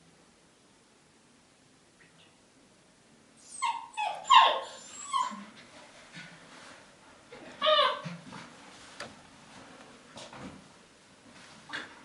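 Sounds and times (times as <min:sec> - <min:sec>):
dog whimpering: 0:03.4 - 0:05.6, 0:07.6 - 0:08.2.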